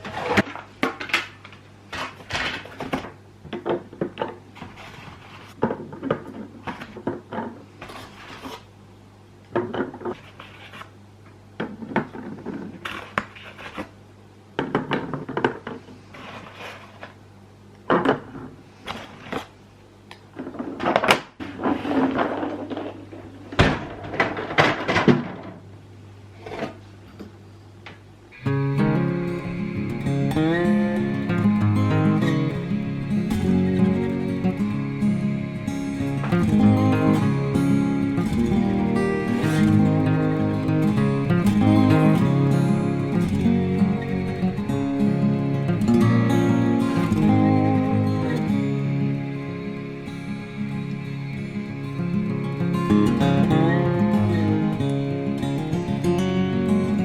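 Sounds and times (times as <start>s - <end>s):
steady low hum: 21.4s - 57.0s.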